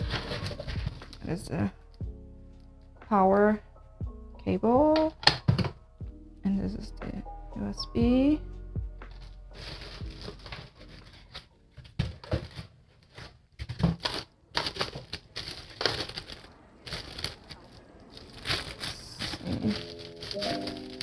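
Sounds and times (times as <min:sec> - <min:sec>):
packaging crinkling and rustling: 0:00.0 - 0:01.2, 0:09.2 - 0:21.0.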